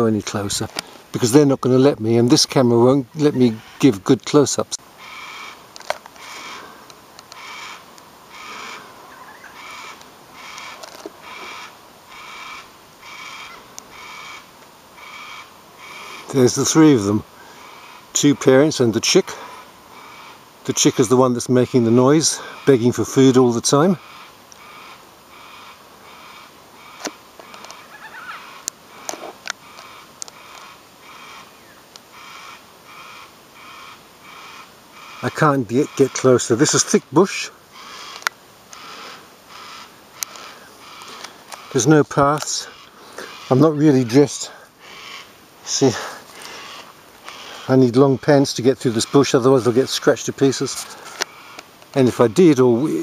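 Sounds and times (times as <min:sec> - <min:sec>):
cockatoo chick rasping begging calls: 0:03.4 - 0:03.8, 0:04.9 - 0:16.4, 0:24.0 - 0:48.3.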